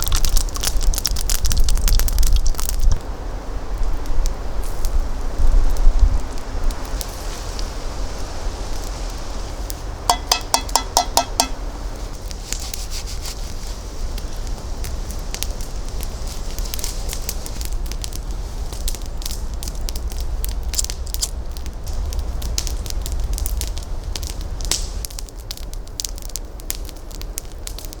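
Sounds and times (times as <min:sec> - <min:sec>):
campfire crackling and popping: 0:00.0 - 0:28.0
steady low rumble: 0:17.6 - 0:25.1.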